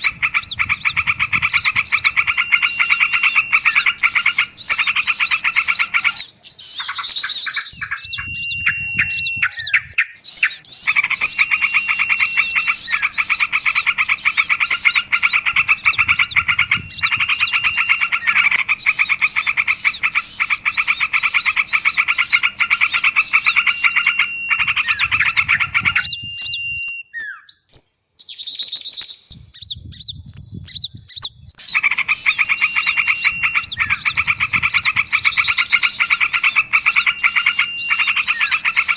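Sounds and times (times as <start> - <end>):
songbirds chattering and ticking: 0.0 - 38.9
thin steady whistle: 1.6 - 5.2, 6.6 - 19.2, 19.8 - 27.5, 32.0 - 38.9.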